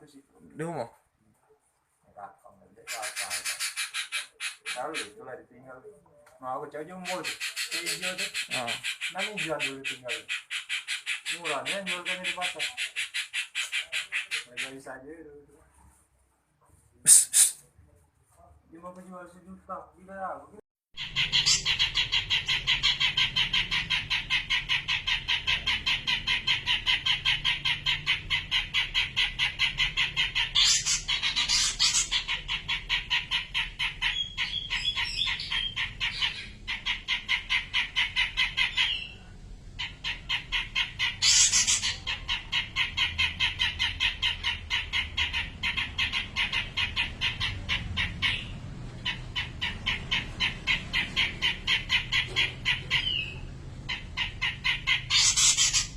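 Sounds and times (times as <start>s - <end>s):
bird chirping rapidly: 2.8s - 5.4s, 6.8s - 14.9s, 20.9s - 55.9s
harsh shrill bird calls: 7.0s - 14.8s, 21.0s - 48.5s, 49.1s - 55.9s.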